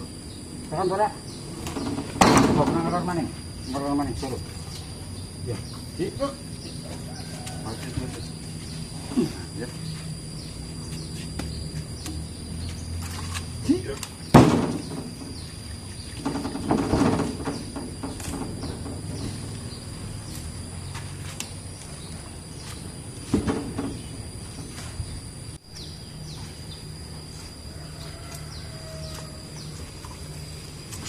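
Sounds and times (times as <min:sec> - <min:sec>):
knocks: 0:14.4 - 0:15.4, 0:16.2 - 0:19.5, 0:23.3 - 0:24.7
truck engine idling: 0:14.4 - 0:25.6.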